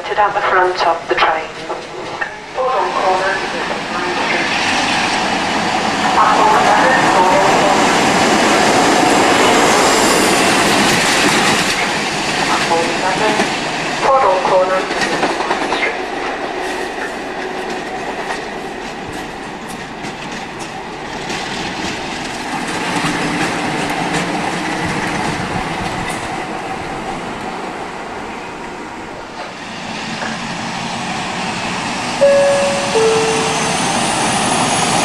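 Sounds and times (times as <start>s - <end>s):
train rumble and hiss: 0.0s - 35.0s
train wheels clicking over rail joints: 14.9s - 27.1s
two-tone train horn: 32.2s - 34.3s.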